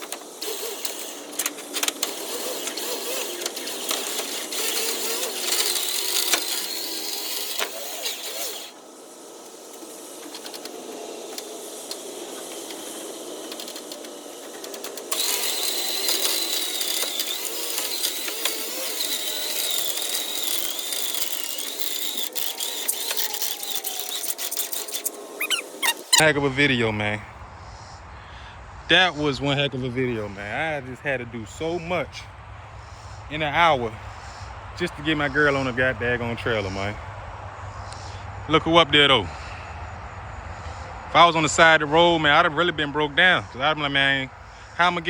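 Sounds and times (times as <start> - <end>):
winch clicking: 0.0 - 26.3
electric winch whining: 0.0 - 26.4.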